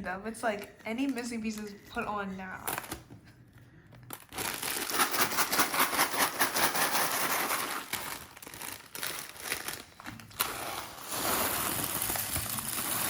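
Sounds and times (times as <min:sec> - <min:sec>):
plastic bag crinkling: 0:00.4 - 0:02.0, 0:04.0 - 0:13.0
plastic pieces rattling in bag: 0:04.1 - 0:13.0.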